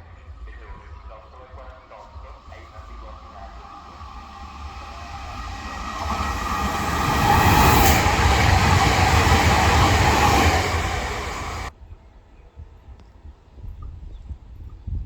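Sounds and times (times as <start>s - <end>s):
train wheels rumbling on rail: 0.2s - 11.7s.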